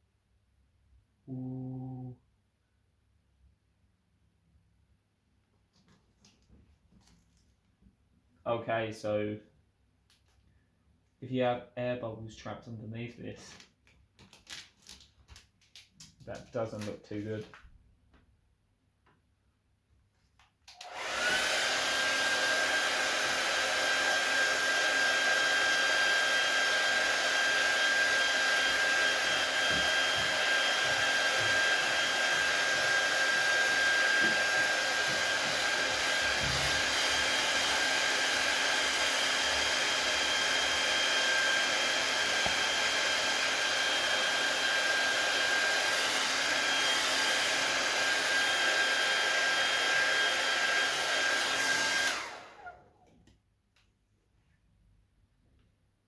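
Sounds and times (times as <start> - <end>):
hot-air blower running: 20.7 - 53.0.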